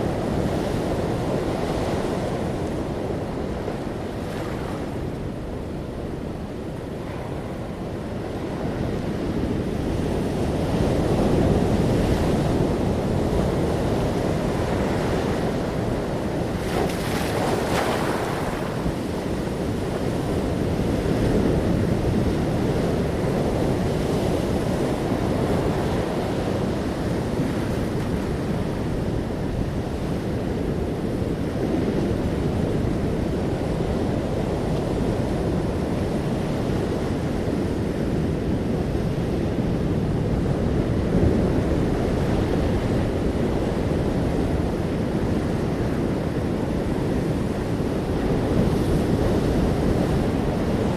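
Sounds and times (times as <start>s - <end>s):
ocean waves breaking: 0.0s - 31.7s
wind on microphone: 0.0s - 50.9s.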